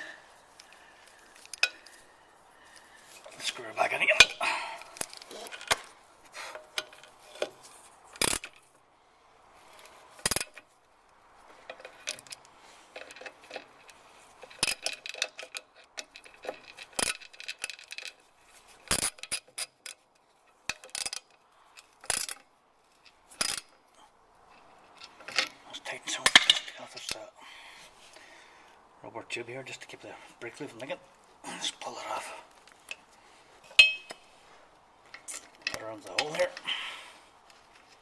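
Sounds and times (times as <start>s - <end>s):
hand tools clinking on metal: 0.0s - 5.8s, 24.5s - 27.3s, 32.8s - 34.3s, 35.1s - 36.8s
sharp metal knocks: 33.7s - 34.2s.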